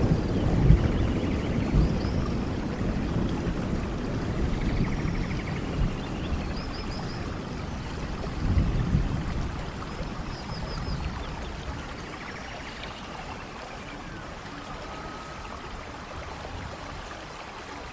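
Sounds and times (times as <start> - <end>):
thunder rumbling: 0.0 - 12.1
heavy rain: 0.0 - 17.9.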